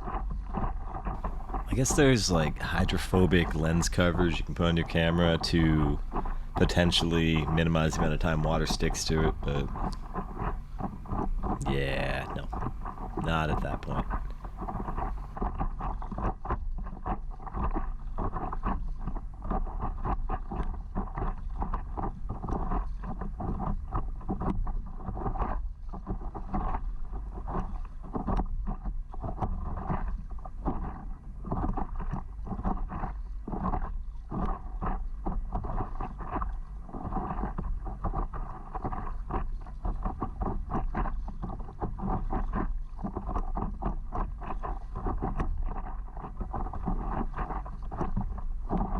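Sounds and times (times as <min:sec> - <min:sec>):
water slapping against paddleboard: 0:00.0 - 0:02.5, 0:14.0 - 0:48.9
wind rumble on microphone: 0:09.1 - 0:48.9.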